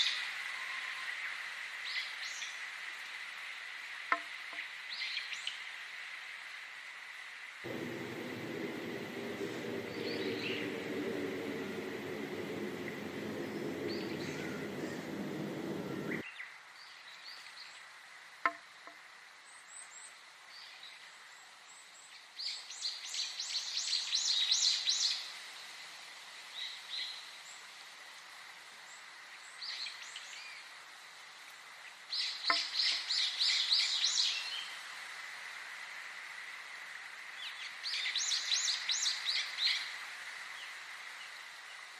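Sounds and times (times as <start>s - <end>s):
low rumble: 7.7s - 16.2s
songbirds singing: 7.7s - 16.2s.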